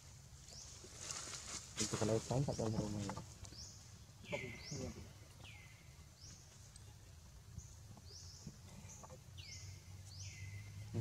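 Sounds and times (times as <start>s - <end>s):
faint bird calling: 4.2s - 6.1s.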